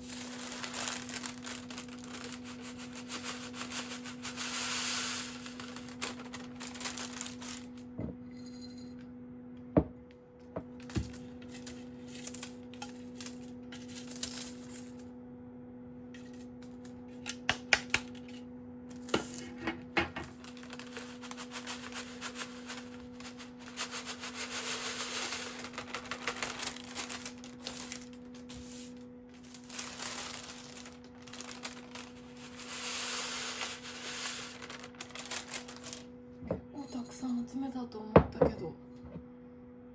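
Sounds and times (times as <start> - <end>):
leaves rustling and crinkling: 0.0 - 7.8, 20.2 - 36.1.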